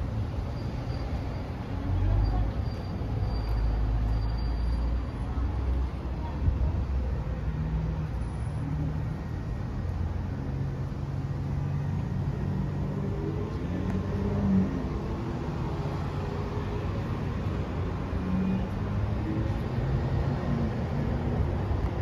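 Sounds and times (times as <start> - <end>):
motor vehicles rumbling: 0.0 - 22.0.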